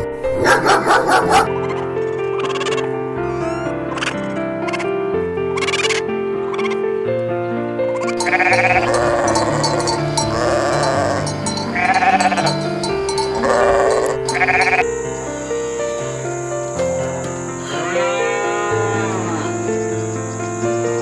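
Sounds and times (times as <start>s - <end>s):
farm animal bleating: 8.2s - 14.8s, 17.6s - 20.2s
background music: 8.2s - 17.9s.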